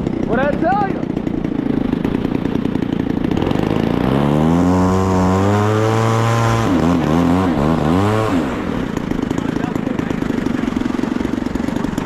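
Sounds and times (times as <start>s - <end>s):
model airplane engine running: 0.0s - 12.0s.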